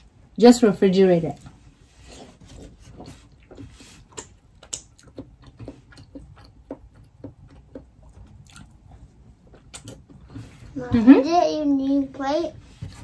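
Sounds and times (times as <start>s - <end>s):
wet chewing: 1.4s - 10.4s
lip smacks: 3.2s - 8.8s.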